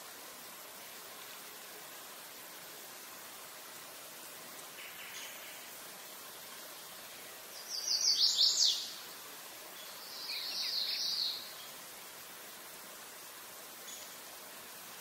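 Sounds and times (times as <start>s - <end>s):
outdoor hiss: 0.0s - 15.0s
songbird singing: 4.7s - 5.8s, 7.0s - 11.9s, 13.8s - 14.3s.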